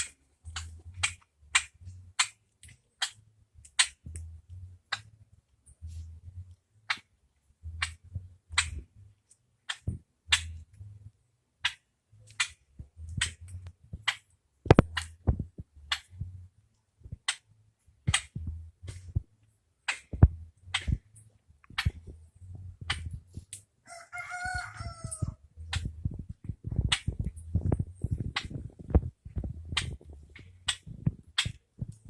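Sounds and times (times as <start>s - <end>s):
low rumble: 24.7s - 32.0s.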